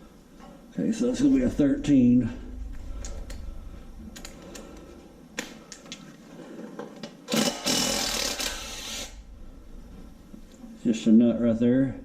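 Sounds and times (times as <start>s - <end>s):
rapid ratchet clicking: 7.3s - 9.2s.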